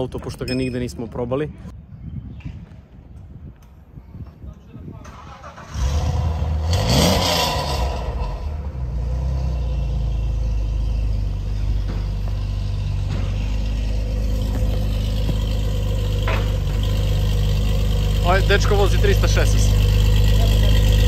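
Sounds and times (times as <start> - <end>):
car engine starting and idling: 5.0 - 21.0.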